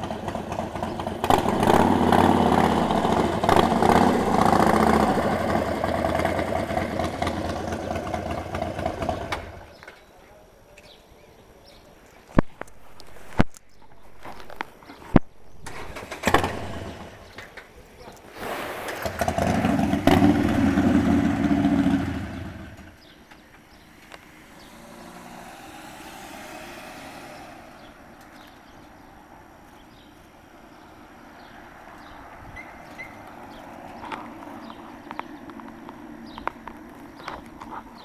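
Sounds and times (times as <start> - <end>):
vehicle engine running loud: 0.0 - 9.6, 19.3 - 23.1, 23.7 - 28.9.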